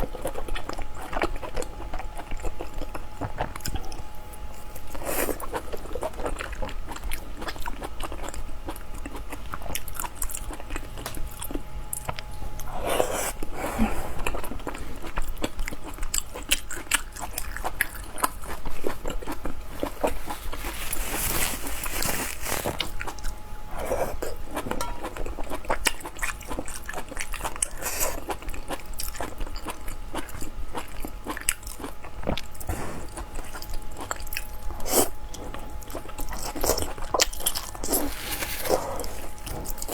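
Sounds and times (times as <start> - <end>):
person chewing close-up: 0.0 - 39.9.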